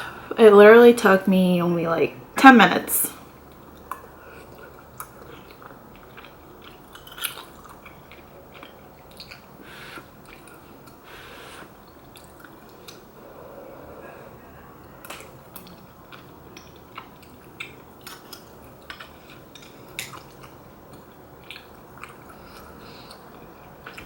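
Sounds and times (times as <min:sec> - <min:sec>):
chewing and mouth sounds: 0:03.3 - 0:13.2, 0:14.8 - 0:24.0.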